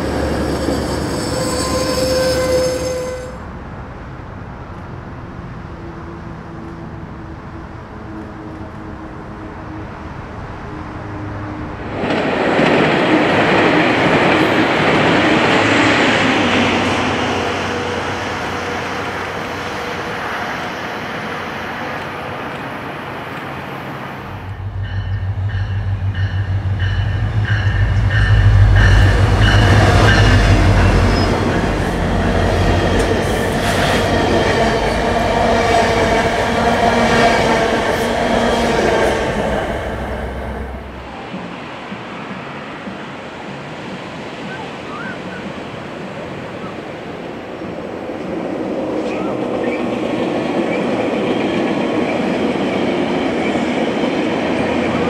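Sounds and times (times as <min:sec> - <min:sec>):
high ringing wheel squeal: 0:00.0 - 0:03.4
diesel locomotive engine: 0:00.0 - 0:55.0
train wheels rumbling: 0:00.0 - 0:55.0.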